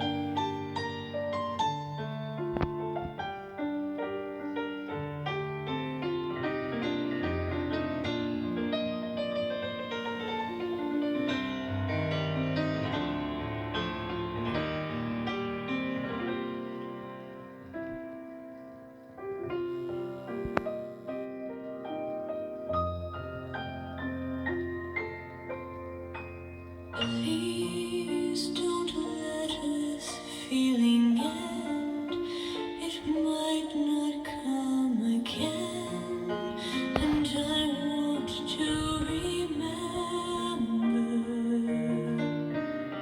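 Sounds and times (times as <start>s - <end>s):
pop ballad on piano and keyboards: 20.4s - 43.0s.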